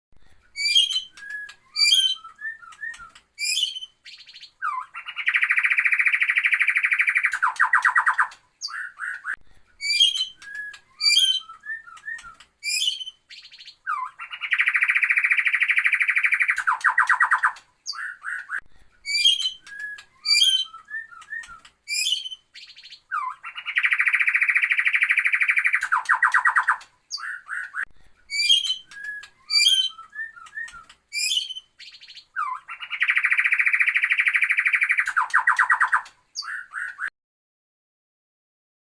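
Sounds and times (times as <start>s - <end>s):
recorded bird song: 0.2s - 37.1s.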